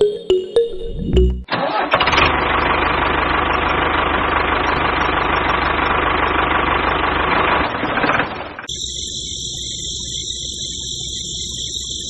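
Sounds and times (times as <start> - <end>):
toy diesel engine running: 1.6 - 9.1.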